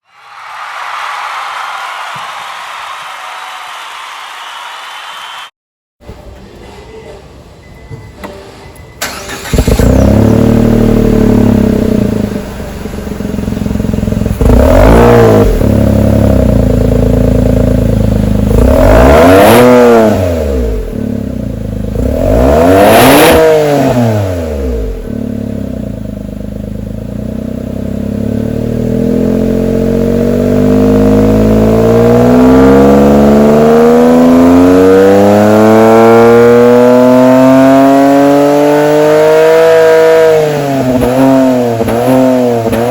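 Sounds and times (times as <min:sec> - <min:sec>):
car engine revving: 0:09.0 - 0:42.9.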